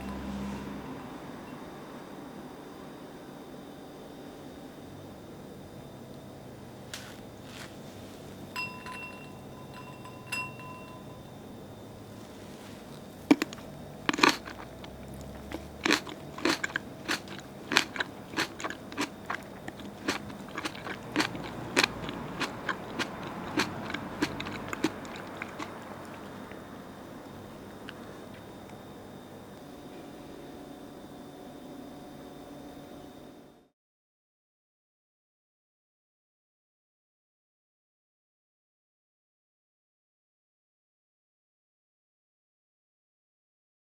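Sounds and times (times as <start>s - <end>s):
sharp clicks and crunches: 12.9s - 26.6s.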